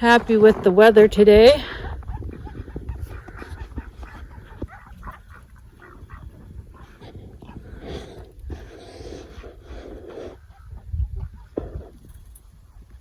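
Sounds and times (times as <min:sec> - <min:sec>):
chickens calling: 0:00.0 - 0:08.3
ducks calling: 0:01.4 - 0:07.7.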